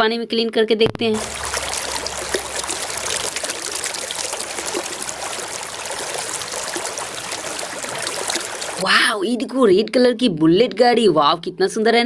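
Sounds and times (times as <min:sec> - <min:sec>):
water trickling and splashing: 0:01.0 - 0:09.0.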